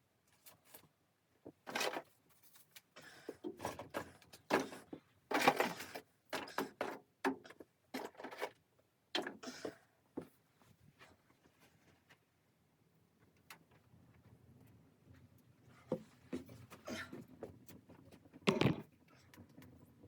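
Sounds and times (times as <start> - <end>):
rustling and knocking handling noise: 13.2 - 19.7.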